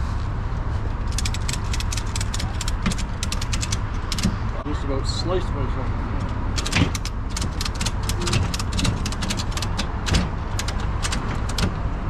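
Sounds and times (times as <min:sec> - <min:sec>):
ratchet strap clicking: 0:01.0 - 0:04.5, 0:06.2 - 0:11.8.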